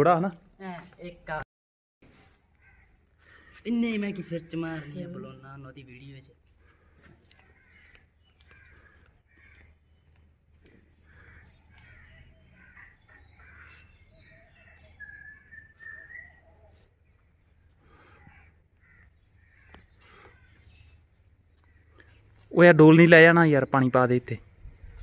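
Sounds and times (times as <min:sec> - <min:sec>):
faint bird calls: 0:02.1 - 0:05.2, 0:06.3 - 0:22.5.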